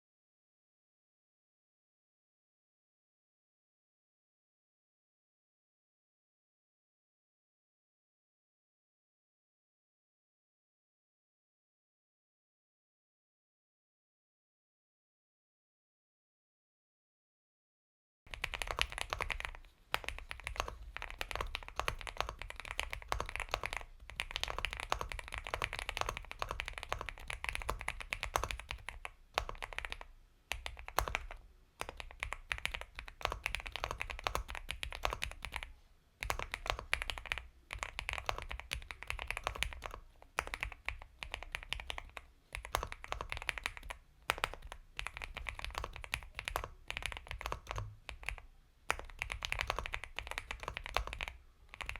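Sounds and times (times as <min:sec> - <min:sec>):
soft keystrokes on mechanical keyboard: 0:18.3 - 0:51.9.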